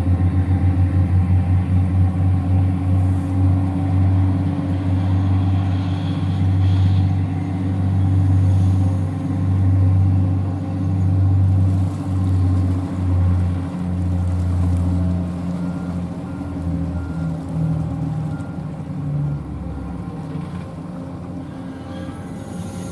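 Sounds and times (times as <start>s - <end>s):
ship engines droning: 0.0s - 22.9s.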